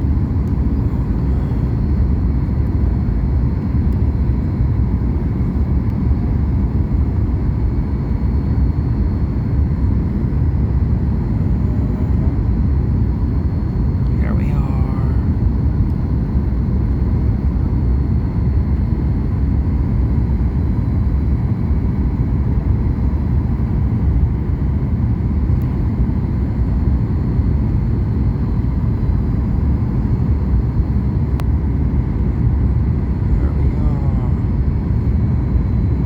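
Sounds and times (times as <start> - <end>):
airliner cabin engine rumble: 0.0 - 36.0.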